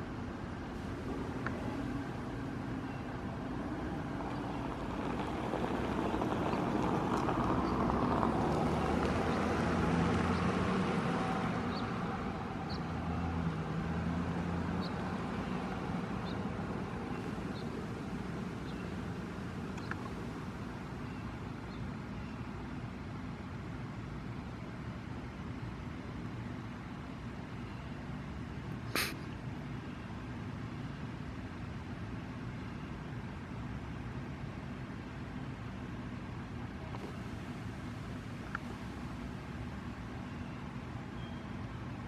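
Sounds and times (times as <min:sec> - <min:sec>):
vehicle running: 0:00.7 - 0:21.4.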